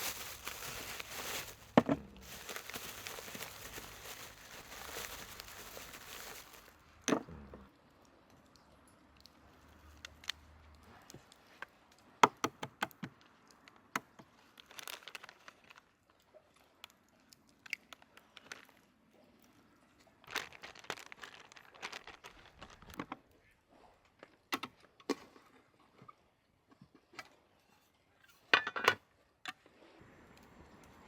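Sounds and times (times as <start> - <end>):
rustling and crinkling: 0.0 - 6.8, 14.2 - 17.0, 17.6 - 18.9, 20.2 - 23.3.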